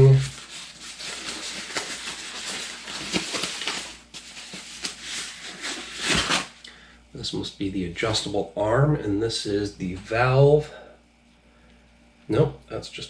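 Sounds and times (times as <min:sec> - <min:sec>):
plastic packaging rustling: 0:00.0 - 0:06.6.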